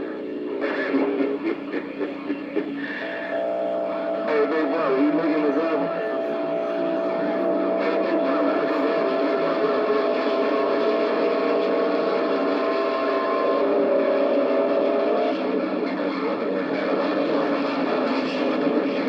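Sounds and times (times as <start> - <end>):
radio static hiss: 0.0 - 15.1
whistling radio tones: 0.0 - 19.0.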